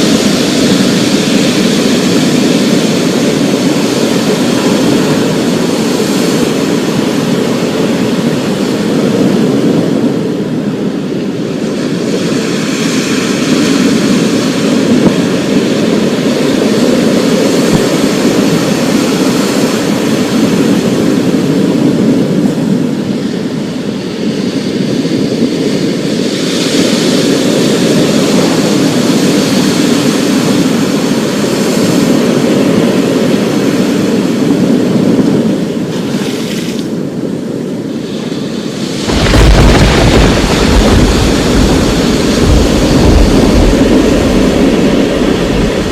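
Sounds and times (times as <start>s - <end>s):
storm noise rumbling: 0.0s - 23.5s, 37.0s - 45.9s
deep thunder roll: 38.9s - 45.9s.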